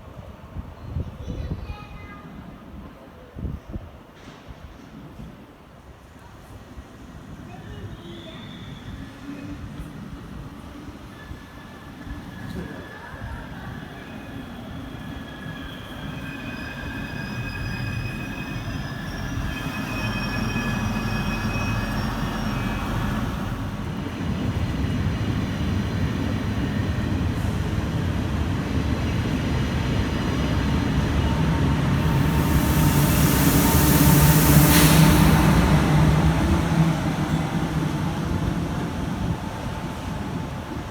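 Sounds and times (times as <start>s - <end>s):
train rumble: 0.1s - 40.9s
train wheels squealing: 7.4s - 24.0s, 29.1s - 40.9s
loud hiss: 32.0s - 36.4s.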